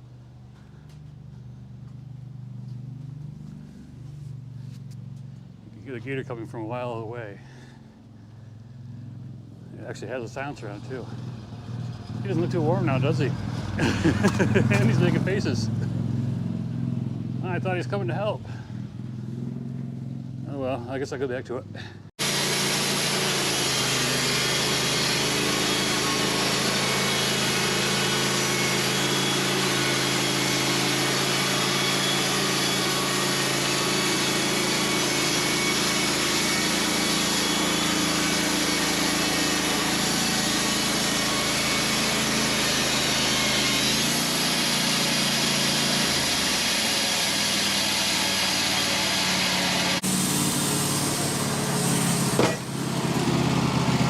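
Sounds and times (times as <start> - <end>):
band sawmill cutting log: 9.6 - 18.7, 22.2 - 54.0.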